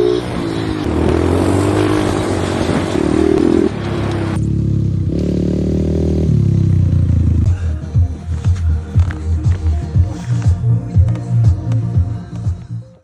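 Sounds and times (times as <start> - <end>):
background music: 0.0 - 4.4, 7.2 - 13.0
motocross bike engine revving: 0.0 - 11.2.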